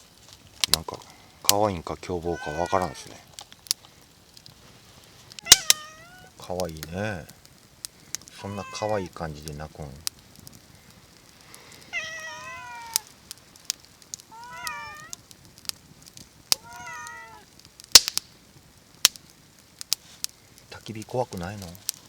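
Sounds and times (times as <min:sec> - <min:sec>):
campfire crackling and popping: 0:00.0 - 0:22.0
cat meowing: 0:02.2 - 0:03.2, 0:05.4 - 0:06.4, 0:08.4 - 0:09.2, 0:11.9 - 0:13.1, 0:14.3 - 0:15.2, 0:16.5 - 0:17.5.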